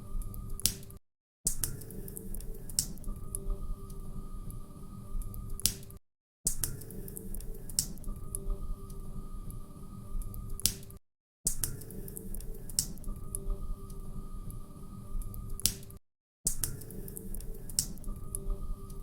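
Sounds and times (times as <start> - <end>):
low rumble and hum: 1.9 - 5.7, 6.9 - 10.7, 11.9 - 15.7, 16.9 - 19.0.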